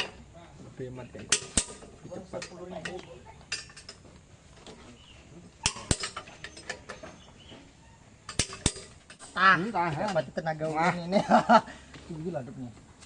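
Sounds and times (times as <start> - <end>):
metal clicks and knocks: 8.3 - 9.3.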